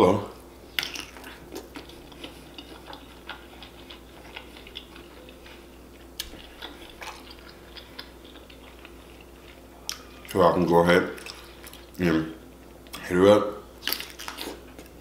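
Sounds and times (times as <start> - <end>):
faint steady hum: 0.0 - 15.0
person chewing: 0.6 - 13.1, 13.8 - 15.0
lip smacks: 6.2 - 9.0.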